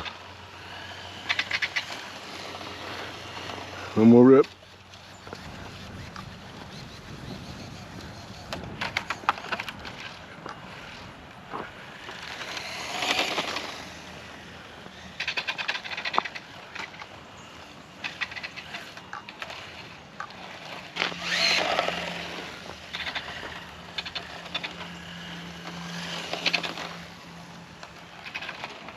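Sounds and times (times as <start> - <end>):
toy motorcycle motor whirring: 0.0 - 28.9
rapid clicking and rattling: 1.2 - 10.6, 18.0 - 28.9.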